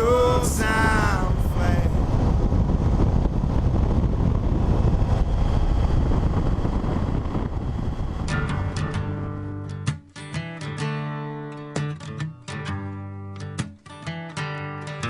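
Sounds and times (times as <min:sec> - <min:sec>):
motorcycle engine and wind noise: 0:00.0 - 0:09.7.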